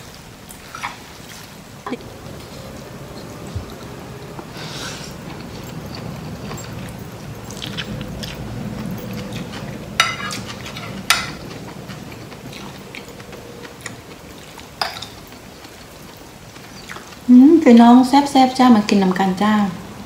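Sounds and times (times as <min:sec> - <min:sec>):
person chewing noodles: 0:00.5 - 0:17.3
cutlery clinking on plate: 0:05.3 - 0:13.3, 0:14.5 - 0:15.4.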